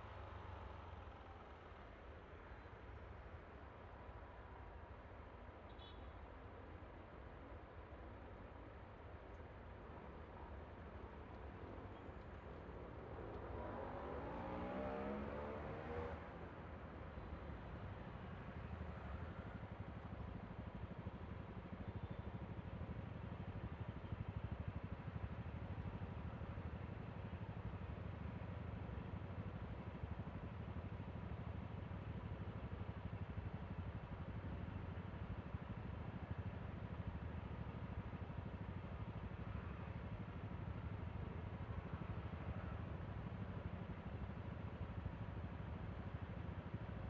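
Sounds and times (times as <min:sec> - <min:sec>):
road noise: 0:09.7 - 0:47.0.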